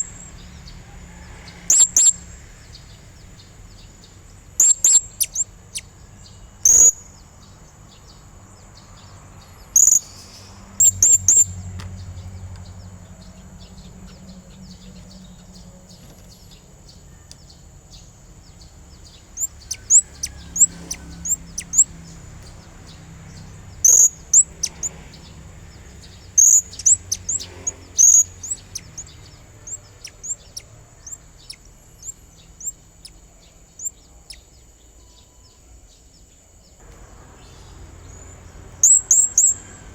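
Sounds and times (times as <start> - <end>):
parrot chirping: 4.6 - 5.9, 19.1 - 33.2, 37.5 - 39.9.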